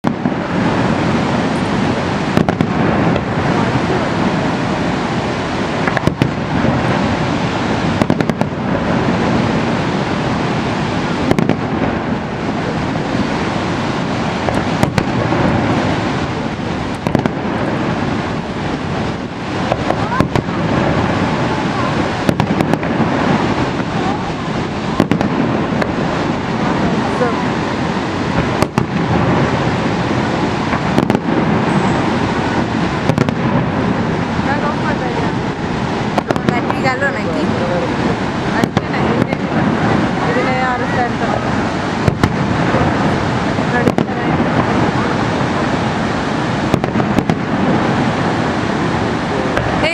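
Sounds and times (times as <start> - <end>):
fireworks bangs and crackles: 0.0 - 49.9
loud rushing noise: 0.0 - 49.9.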